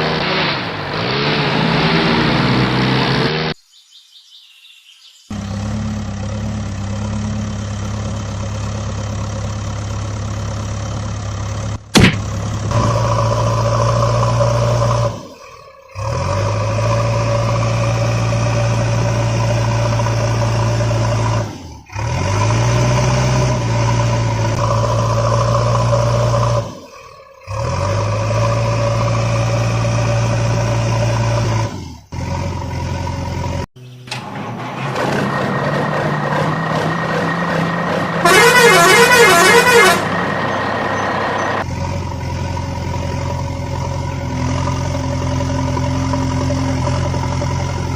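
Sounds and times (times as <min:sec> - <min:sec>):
vehicle engine running: 0:05.3 - 0:47.9.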